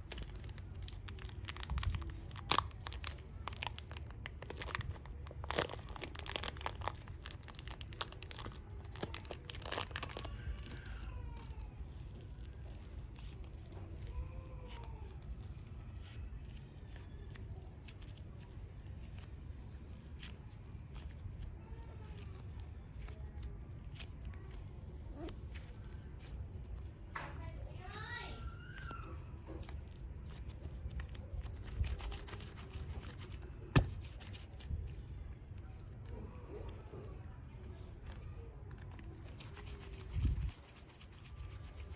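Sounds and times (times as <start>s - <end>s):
plastic packaging rustling and scraping: 0.0s - 35.1s, 35.8s - 41.9s
clay tearing and squishing: 0.0s - 41.9s.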